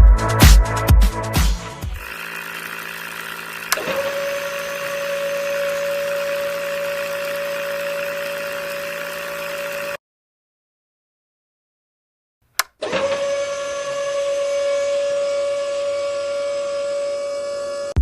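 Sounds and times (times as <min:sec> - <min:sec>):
electric motor humming: 0:01.9 - 0:10.0, 0:12.8 - 0:18.0
motor switch click: 0:02.0 - 0:10.0, 0:12.5 - 0:13.2.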